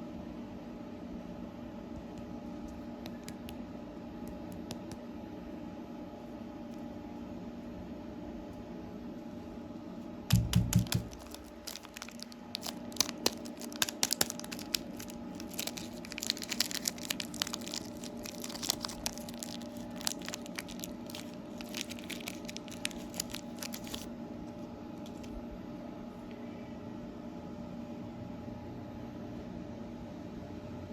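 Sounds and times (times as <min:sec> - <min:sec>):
steady background hum: 0:00.0 - 0:30.9
plastic wrapper crinkling: 0:10.3 - 0:24.1, 0:25.0 - 0:25.4.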